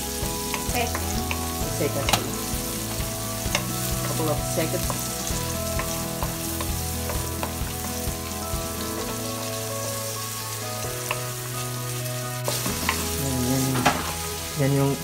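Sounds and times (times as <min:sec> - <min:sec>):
onions sizzling in hot oil: 0:00.0 - 0:15.0
utensil clicking against pan: 0:00.5 - 0:02.3, 0:03.5 - 0:04.2.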